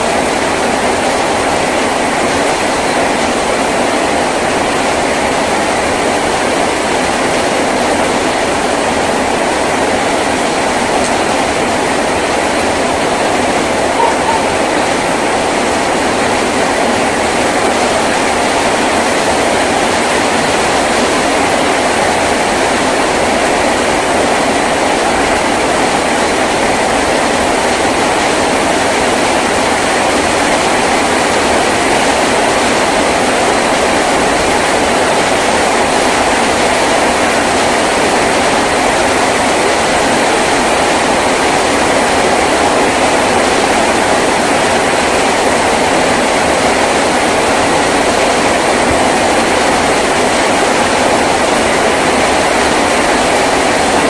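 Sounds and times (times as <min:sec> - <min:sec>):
heavy rain on a tin roof: 0:00.0 - 0:54.0.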